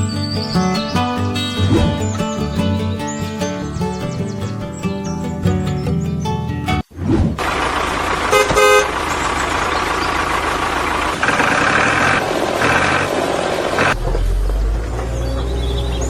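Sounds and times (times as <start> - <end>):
motor vehicle running: 0.0 - 5.9, 7.2 - 16.0
short horn toots: 8.3 - 9.0.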